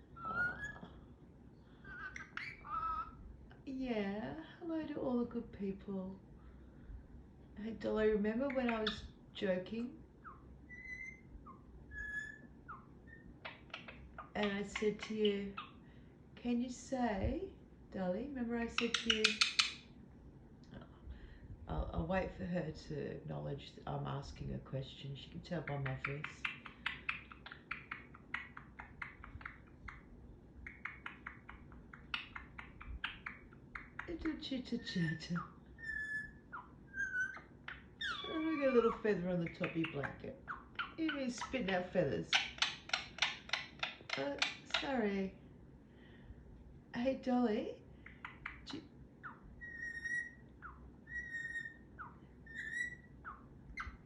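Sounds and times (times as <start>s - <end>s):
parrot chirping and whistling: 1.8s - 3.2s, 10.2s - 14.2s, 35.4s - 39.0s, 48.1s - 54.0s
parrot clicking chatter: 13.1s - 15.8s, 18.8s - 19.9s, 25.8s - 34.3s, 35.8s - 44.9s, 48.0s - 50.3s.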